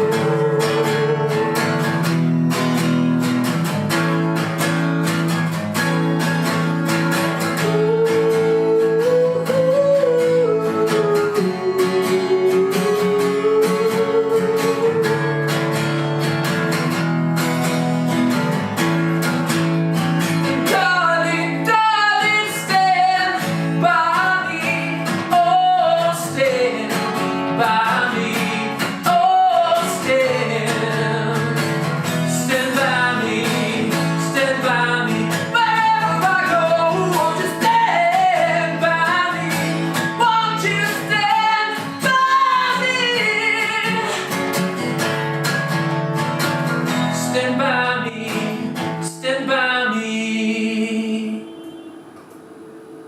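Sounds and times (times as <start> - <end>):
person singing: 0.0 - 2.1, 7.5 - 16.0, 20.5 - 45.1, 47.0 - 51.8
acoustic guitar: 0.0 - 53.0.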